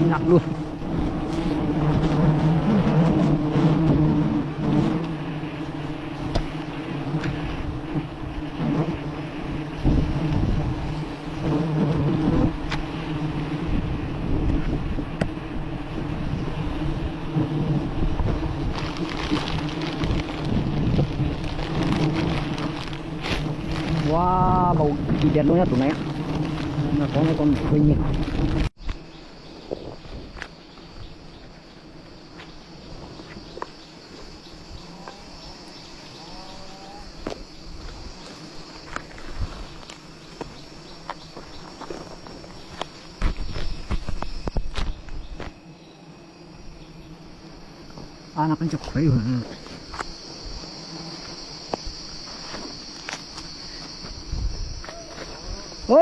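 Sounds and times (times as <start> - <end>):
rustling crackle: 0.0 - 13.7, 17.4 - 29.1, 37.1 - 45.6
wind buffeting microphone: 9.6 - 11.2, 13.4 - 28.7, 54.1 - 55.8
high-pitched insect chirring: 18.3 - 56.0.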